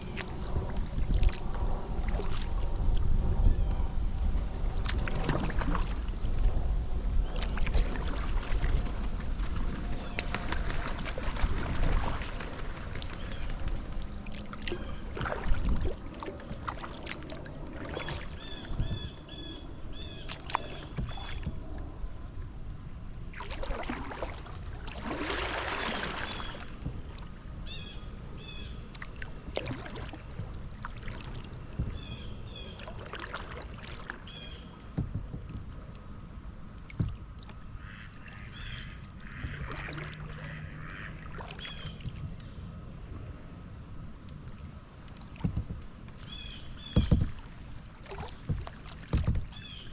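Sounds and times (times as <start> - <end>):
water swishing and splashing: 0.0 - 49.9
paddle knocks: 34.9 - 35.7, 36.9 - 37.6, 45.2 - 49.9.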